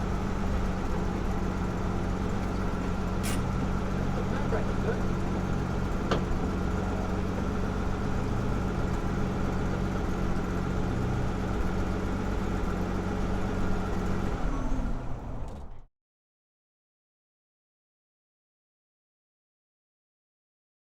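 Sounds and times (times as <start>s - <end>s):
car engine running: 0.0s - 14.3s.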